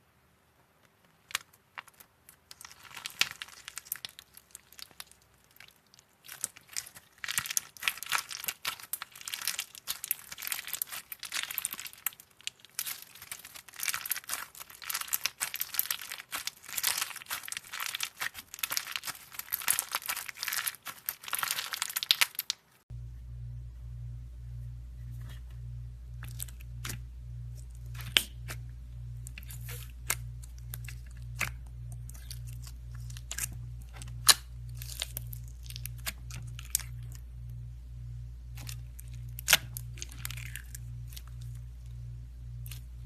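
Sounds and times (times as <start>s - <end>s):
crunchy slime crackling: 1.3s - 22.8s, 26.1s - 37.6s, 38.2s - 43.0s
steady low hum: 22.9s - 43.0s.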